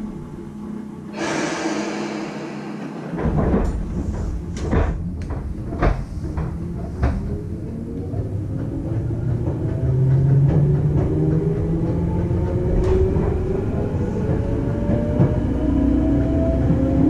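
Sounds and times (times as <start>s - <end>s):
train rumbling: 1.0s - 17.0s
compressed air hiss: 1.1s - 3.5s.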